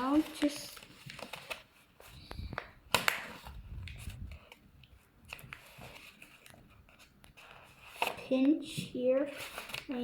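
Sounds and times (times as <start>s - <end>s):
paper crinkling: 0.0s - 10.0s.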